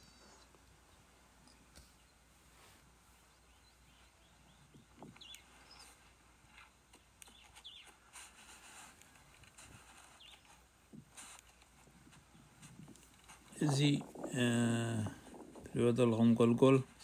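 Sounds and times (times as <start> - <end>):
faint bird chirps: 3.2 - 8.3, 9.9 - 10.7.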